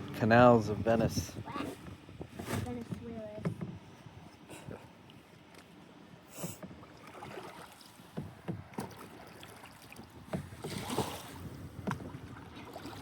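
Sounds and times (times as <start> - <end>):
paddle swishing through water: 1.4 - 13.0
light knocks on boat: 1.8 - 3.8, 8.0 - 9.2, 10.0 - 10.9, 11.8 - 12.2.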